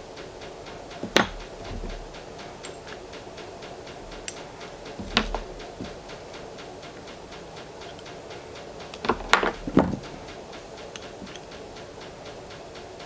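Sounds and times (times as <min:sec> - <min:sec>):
faint even ticking: 0:00.0 - 0:13.0
hard parts knocking: 0:00.0 - 0:13.0.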